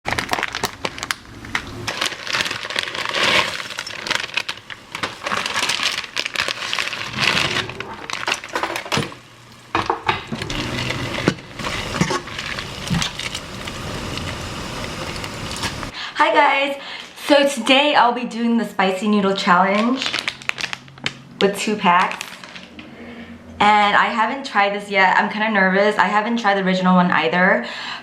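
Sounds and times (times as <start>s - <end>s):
crinkling handling noises: 0.1s - 15.9s, 19.6s - 22.9s.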